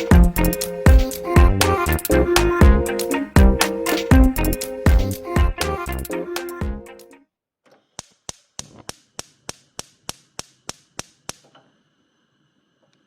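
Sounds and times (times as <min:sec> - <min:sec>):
background music: 0:00.0 - 0:07.2
sharp taps: 0:08.0 - 0:11.6.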